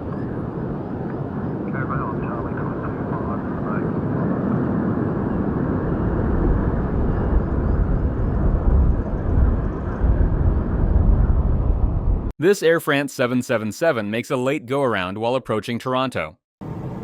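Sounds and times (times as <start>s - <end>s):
jet engines rumbling: 0.0s - 12.3s, 16.6s - 17.0s.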